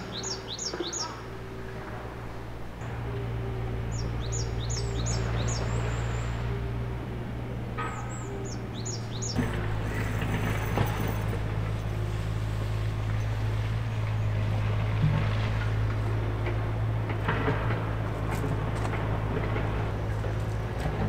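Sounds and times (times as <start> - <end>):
small bird chirping: 0.0 - 1.3, 3.9 - 6.3, 7.9 - 10.2
low hum: 0.0 - 21.0.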